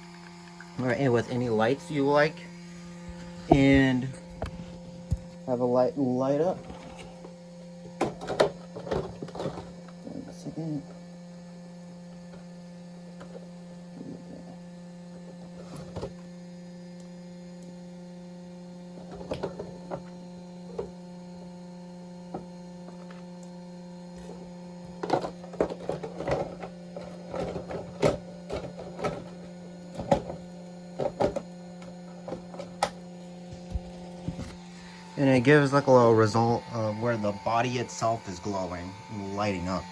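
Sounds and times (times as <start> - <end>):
steady electrical hum: 0.0 - 39.9.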